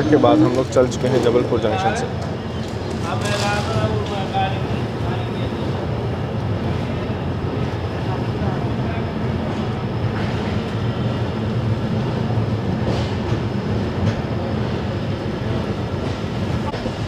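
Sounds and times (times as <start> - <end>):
train running gear rumbling: 0.0 - 17.0.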